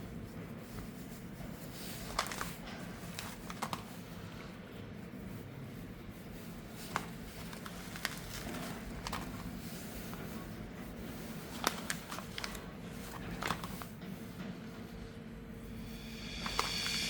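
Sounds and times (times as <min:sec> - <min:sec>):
low steady hum: 0:14.9 - 0:17.0.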